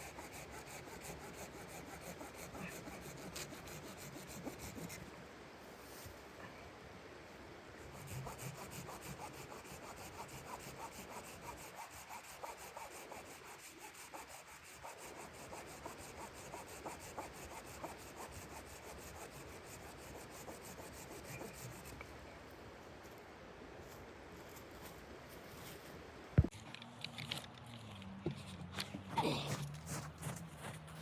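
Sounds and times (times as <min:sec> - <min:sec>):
hand saw cutting wood: 0:00.0 - 0:04.9, 0:07.8 - 0:21.9.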